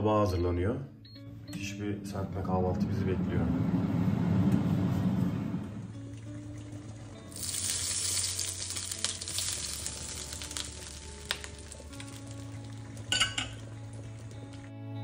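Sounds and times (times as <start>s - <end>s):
food sizzling in a pan: 6.4s - 14.6s
utensil clinking against pan: 13.1s - 13.6s.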